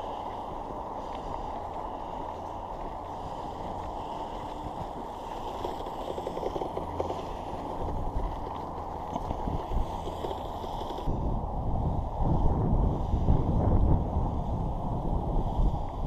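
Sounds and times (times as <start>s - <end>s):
toy snowcat electric motors: 0.0s - 11.1s
tracks clattering: 0.0s - 11.1s
steady rushing noise: 0.0s - 16.0s.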